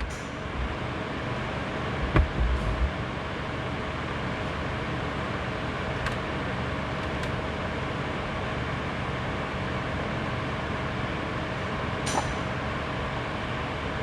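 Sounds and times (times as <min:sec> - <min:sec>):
low hum: 0:00.0 - 0:03.6
small click: 0:12.0 - 0:12.4.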